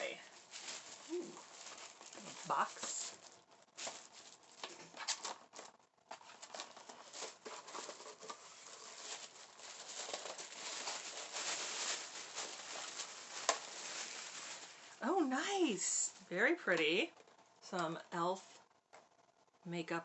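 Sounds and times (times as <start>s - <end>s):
packaging rustling and crinkling: 0.0s - 15.4s.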